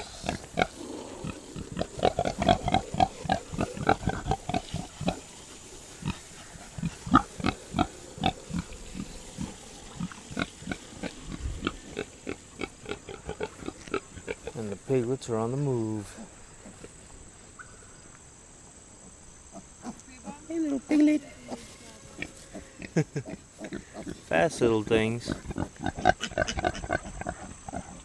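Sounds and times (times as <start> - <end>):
hogs grunting: 0.0 - 17.2, 19.0 - 28.0.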